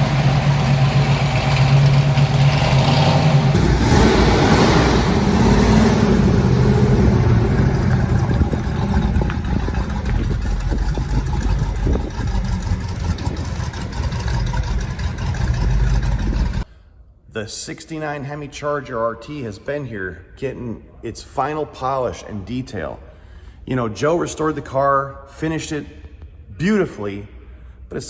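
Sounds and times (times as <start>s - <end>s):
car engine running: 0.0s - 16.7s.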